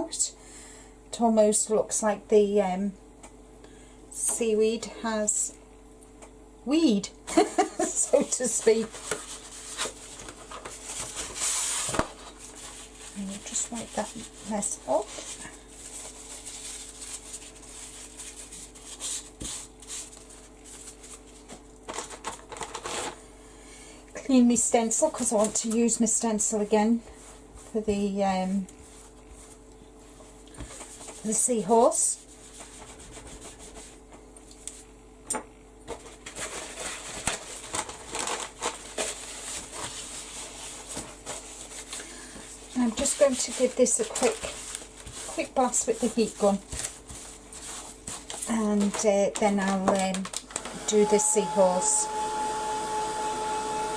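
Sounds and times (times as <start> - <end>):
stencil rubbing and crinkling: 7.9 - 23.2, 28.8 - 34.3, 35.9 - 50.2
wiping strokes on a surface: 12.4 - 21.4, 28.8 - 34.0, 39.2 - 48.5.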